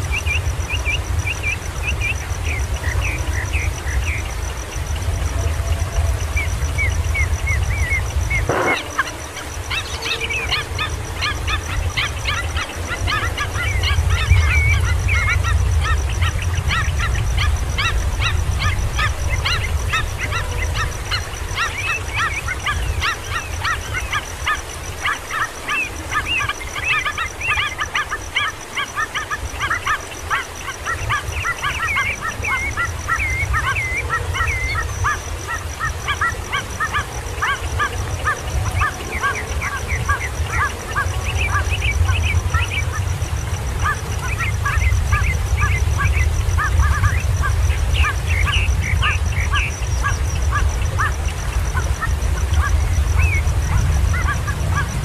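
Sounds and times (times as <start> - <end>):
bird chicks chirping: 7.5 - 16.9.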